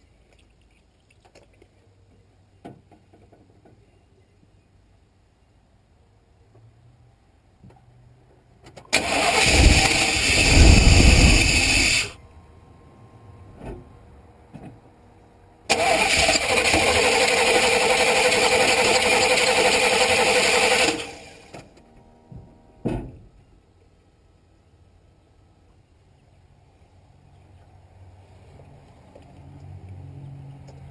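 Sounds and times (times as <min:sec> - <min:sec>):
engine cranking on starter: 0:08.9 - 0:12.2, 0:15.7 - 0:21.7.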